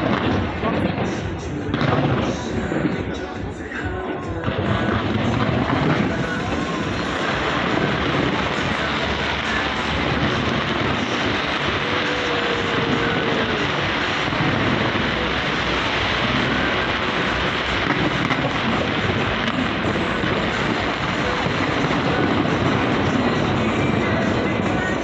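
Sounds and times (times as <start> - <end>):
fireworks rumbling din: 0.0 - 25.0.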